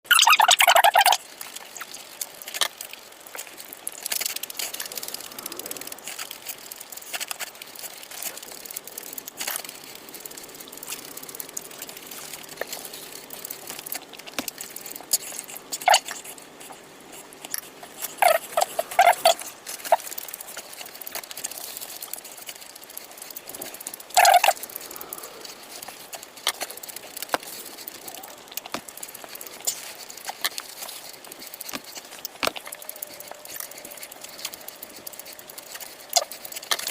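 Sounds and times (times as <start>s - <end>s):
person chewing with wet mouth clicks: 0.1s - 36.9s.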